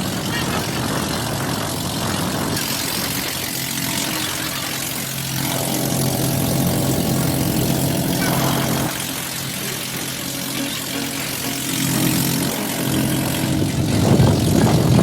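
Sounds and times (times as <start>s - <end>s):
wind noise: 0.0s - 2.6s, 12.2s - 15.0s
engine humming: 2.6s - 15.0s.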